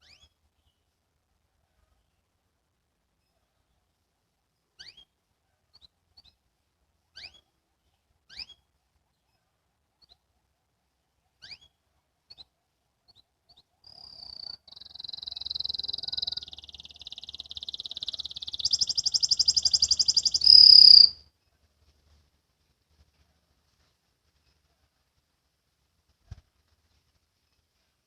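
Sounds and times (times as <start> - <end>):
canary singing trills: 0.0 - 0.4, 4.8 - 5.1, 7.1 - 7.5, 8.3 - 8.6, 11.4 - 12.5, 13.1 - 21.2.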